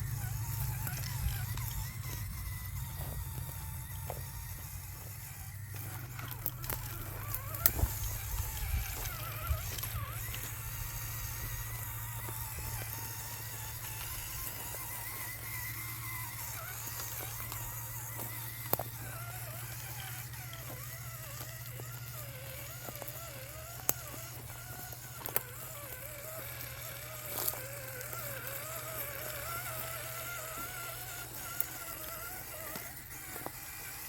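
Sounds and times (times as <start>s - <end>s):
small electric motor whining: 0.0s - 34.0s.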